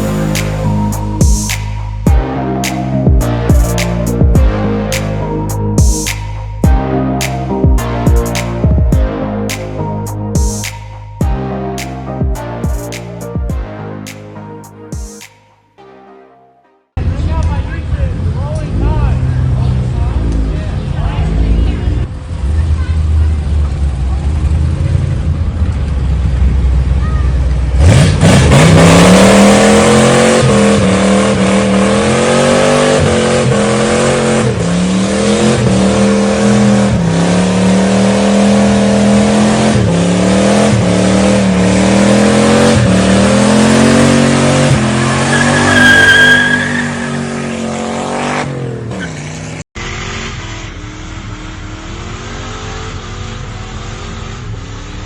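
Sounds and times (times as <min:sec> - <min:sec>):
car engine revving: 0:27.7 - 0:55.0.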